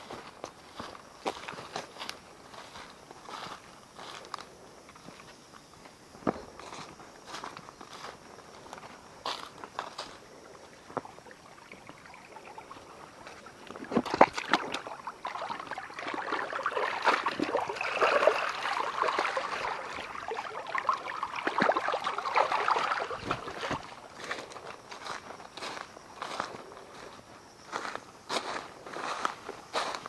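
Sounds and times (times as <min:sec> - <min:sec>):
water sloshing and splashing: 0:09.6 - 0:26.4.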